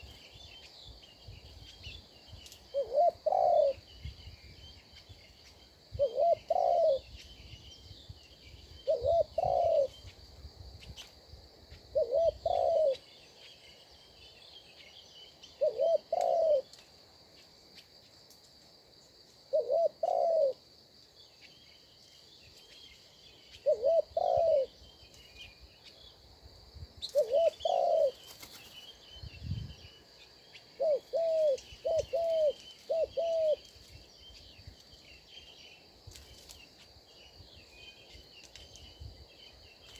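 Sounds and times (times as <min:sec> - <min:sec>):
faint small-bird chirps: 0:00.0 - 0:18.1, 0:19.4 - 0:26.2, 0:27.0 - 0:39.9
high insect drone: 0:00.0 - 0:39.9
dove cooing: 0:02.7 - 0:03.8, 0:06.0 - 0:07.1, 0:08.8 - 0:10.0, 0:11.9 - 0:13.0, 0:15.6 - 0:16.7, 0:19.5 - 0:20.6, 0:23.6 - 0:24.8, 0:27.1 - 0:28.2, 0:30.8 - 0:33.7.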